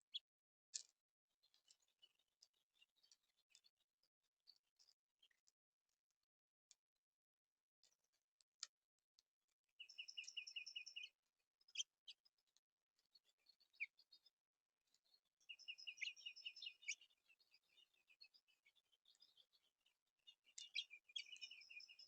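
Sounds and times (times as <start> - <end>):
bird chips: 9.8 - 11.1, 15.5 - 19.5, 20.5 - 22.0
songbird singing high notes: 15.5 - 17.0.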